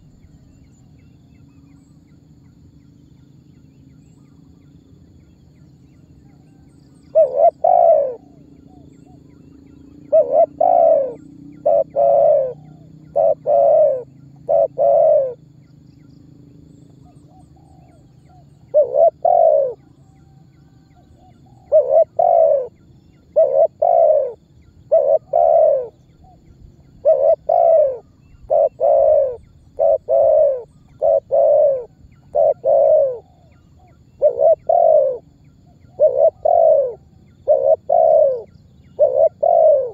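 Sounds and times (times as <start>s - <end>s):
faint low hum: 0.0s - 39.9s
dove cooing: 6.3s - 15.6s, 17.0s - 20.1s, 21.0s - 39.9s.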